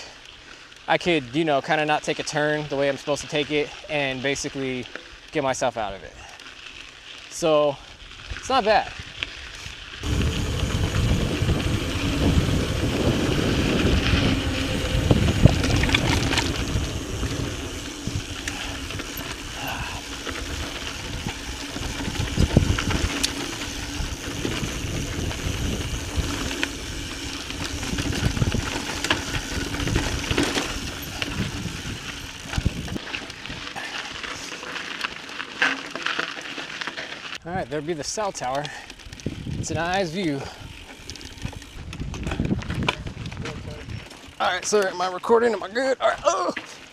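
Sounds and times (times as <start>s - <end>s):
bike tyres crunching on dirt: 0.0s - 46.9s
low rumble: 10.0s - 33.0s
bike rattling and knocking: 10.0s - 33.6s, 38.4s - 45.0s.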